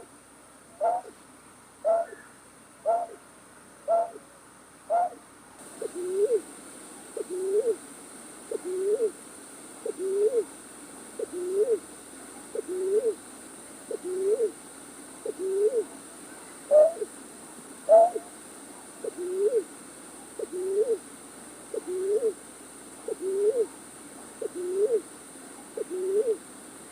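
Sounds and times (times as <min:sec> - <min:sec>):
low two-part bird calls: 0:00.8 - 0:01.2, 0:01.8 - 0:03.2, 0:03.9 - 0:04.2, 0:17.9 - 0:18.3
short sharp bird calls: 0:00.8 - 0:01.2, 0:01.8 - 0:03.2, 0:03.9 - 0:04.2.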